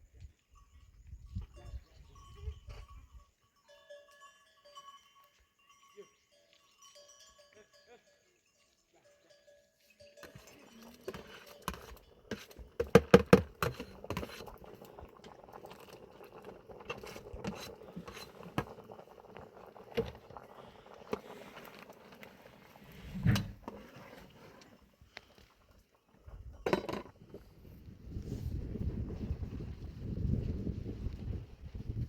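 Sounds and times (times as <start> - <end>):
objects clinking and knocking: 26.6 - 27.2.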